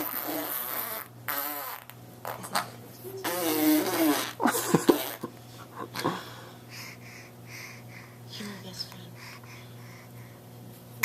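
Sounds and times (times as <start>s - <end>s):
rasping fart-like noises: 0.0s - 5.3s.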